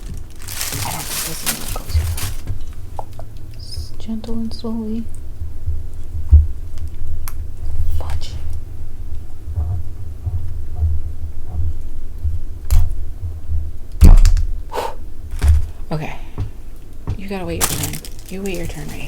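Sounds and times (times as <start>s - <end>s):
deep handling rumble: 0.0s - 19.0s
knocks and clicks: 16.4s - 19.0s.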